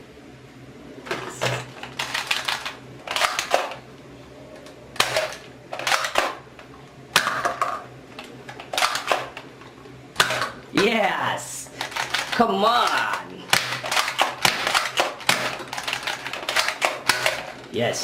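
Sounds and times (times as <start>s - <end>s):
toy blaster plastic clacks: 1.8s - 3.8s, 8.5s - 9.3s, 11.8s - 17.6s.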